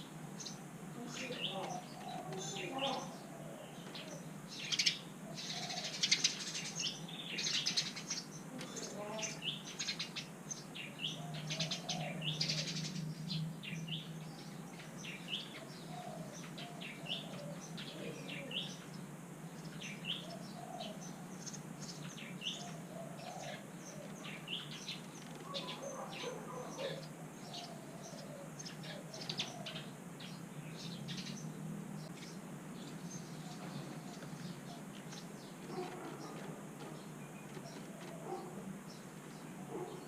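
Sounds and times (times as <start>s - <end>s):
nestlings begging chirps: 0.3s - 40.0s.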